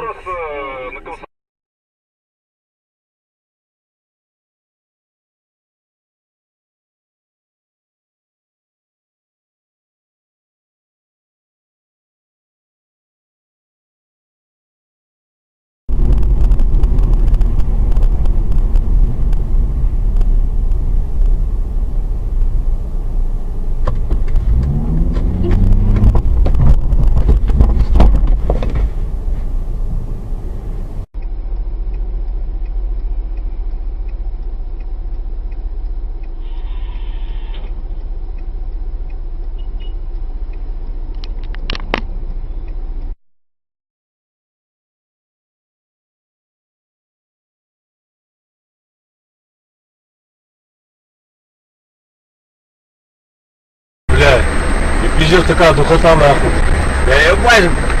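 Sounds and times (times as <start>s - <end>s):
car engine and road rumble: 0.0s - 1.3s, 15.9s - 43.2s, 54.1s - 58.0s
scattered clicks: 15.9s - 21.4s, 40.4s - 42.4s.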